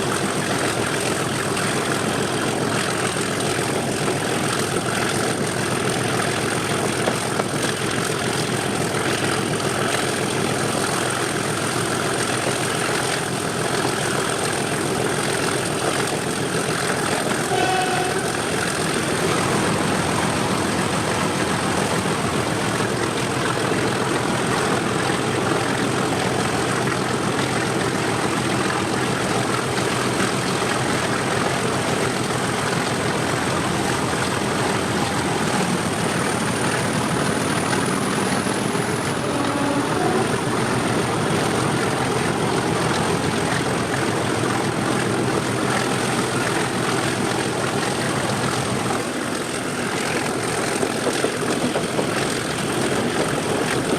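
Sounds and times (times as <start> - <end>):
diesel locomotive engine running: 0.0 - 53.9
turbocharger whistle: 17.4 - 18.5.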